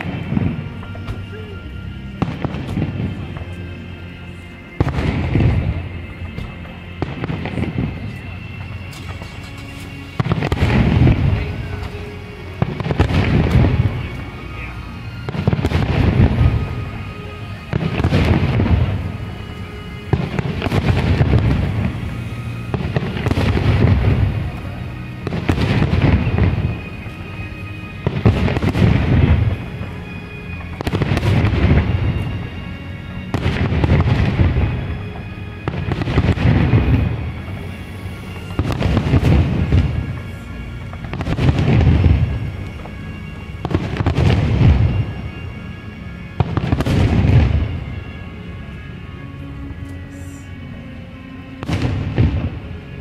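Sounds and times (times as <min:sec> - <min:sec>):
firework shells bursting with crackle: 0:04.7 - 0:32.5, 0:33.1 - 0:45.5.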